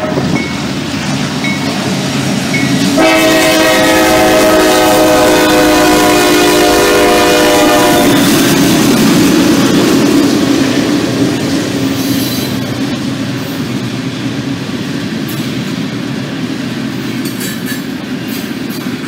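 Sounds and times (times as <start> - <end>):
train horn: 0.0 - 0.3, 2.9 - 8.4
freight train rolling past: 0.0 - 19.0.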